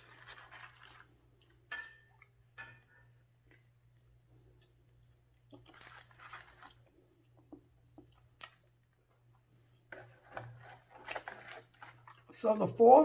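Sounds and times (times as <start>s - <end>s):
chewing and crunching food: 0.0s - 2.4s, 3.1s - 12.8s
low electrical hum: 0.0s - 13.0s.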